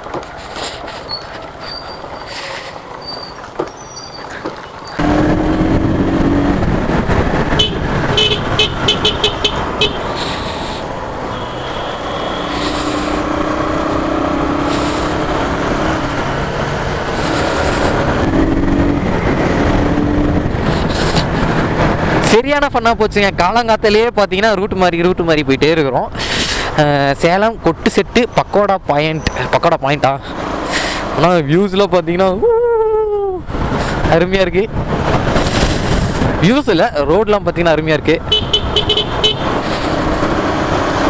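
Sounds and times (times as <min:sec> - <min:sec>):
motorcycle engine: 0:04.6 - 0:22.2, 0:38.2 - 0:41.0
wind noise on microphone: 0:05.0 - 0:22.3, 0:33.4 - 0:36.5
horn honking: 0:07.4 - 0:13.8, 0:38.2 - 0:40.0.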